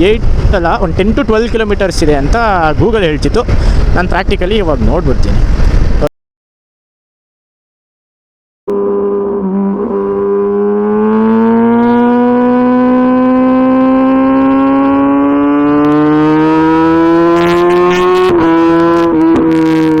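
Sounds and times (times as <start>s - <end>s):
motorcycle engine accelerating: 8.7s - 20.0s.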